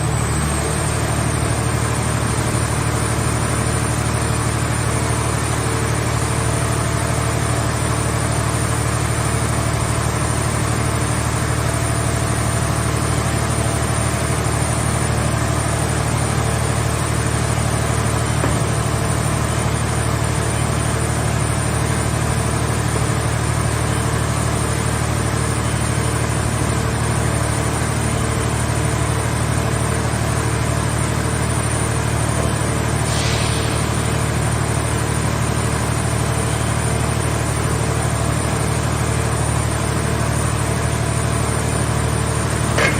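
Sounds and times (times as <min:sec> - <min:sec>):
baler engine humming: 0:40.4 - 0:42.9.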